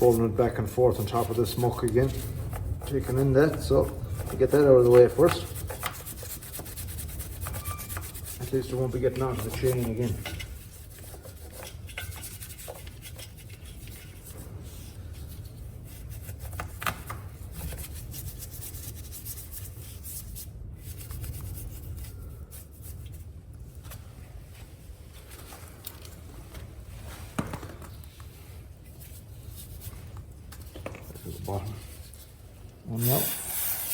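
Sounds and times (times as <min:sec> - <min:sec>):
hand scrubbing dirt: 0:00.0 - 0:13.7.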